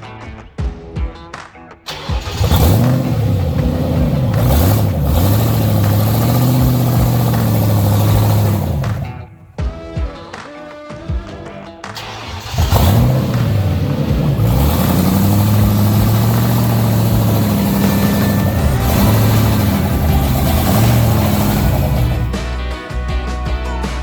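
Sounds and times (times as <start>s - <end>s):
car engine revving under load: 1.9s - 9.4s, 12.0s - 22.6s.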